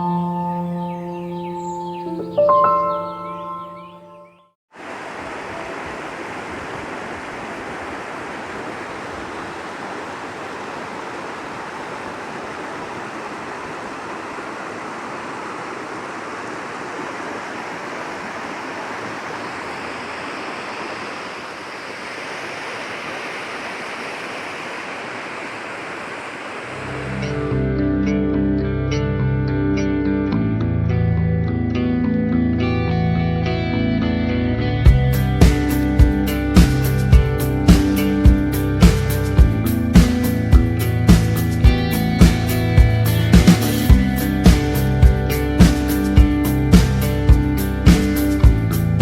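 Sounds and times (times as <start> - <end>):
running water rushing: 4.7 - 27.6, 35.4 - 48.5.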